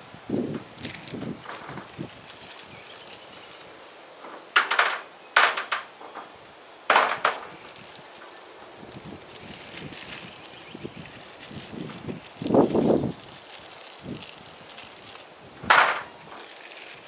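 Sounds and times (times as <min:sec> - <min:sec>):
sharp knocks and clatter: 0:04.2 - 0:06.3, 0:06.9 - 0:07.5.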